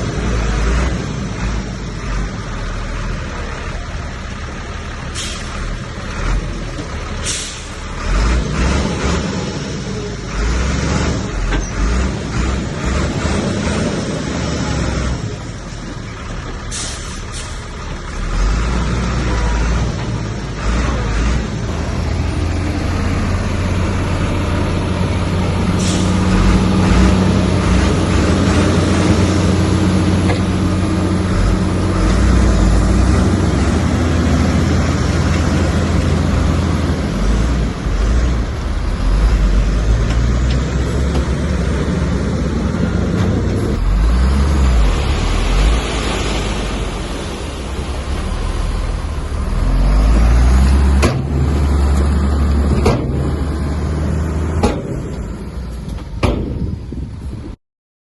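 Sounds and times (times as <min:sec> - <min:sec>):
heavy diesel engine under load: 0:00.0 - 0:57.6.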